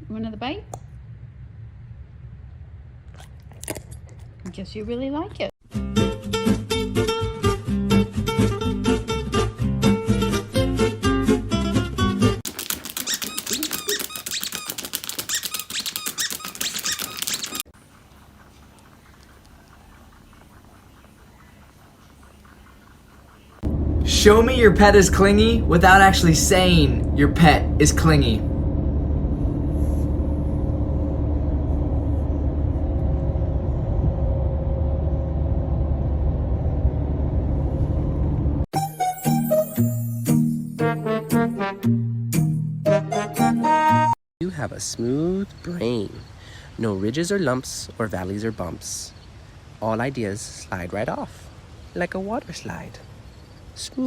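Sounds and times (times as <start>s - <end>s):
low rumble: 0.0s - 5.0s, 23.6s - 38.7s
faint hum: 0.0s - 5.5s, 16.5s - 38.6s
fast clatter of clicks: 12.5s - 17.7s
high-pitched squeaks: 12.5s - 17.7s.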